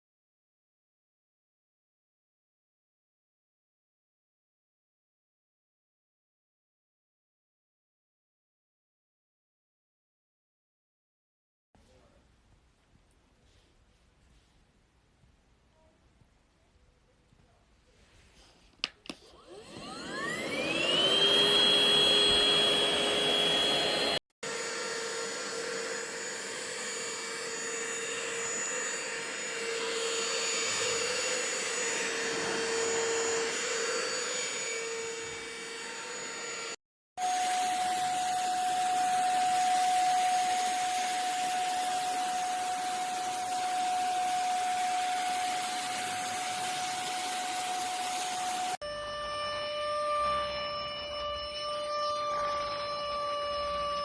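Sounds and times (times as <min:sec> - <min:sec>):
handheld vacuum motor whining: 0:19.1 - 0:54.0.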